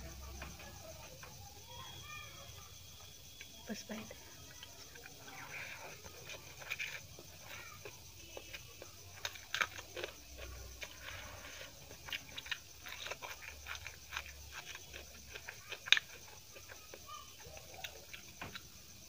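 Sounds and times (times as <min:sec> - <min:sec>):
person chewing and crunching: 0:04.4 - 0:19.0.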